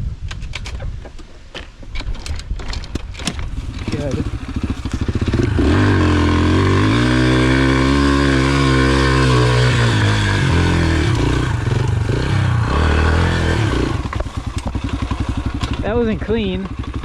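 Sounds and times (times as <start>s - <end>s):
motorcycle engine revving: 3.4s - 17.0s.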